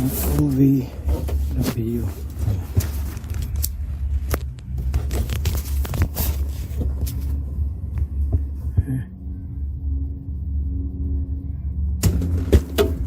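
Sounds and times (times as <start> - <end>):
parts clicking and scraping: 0.0 - 8.5
low hum: 0.0 - 13.0.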